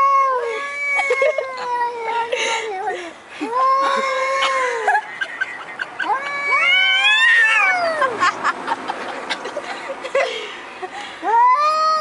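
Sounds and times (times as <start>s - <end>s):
cats yowling: 0.0s - 4.9s, 5.8s - 8.2s, 11.2s - 12.0s
cats wailing: 0.0s - 8.2s, 11.2s - 12.0s.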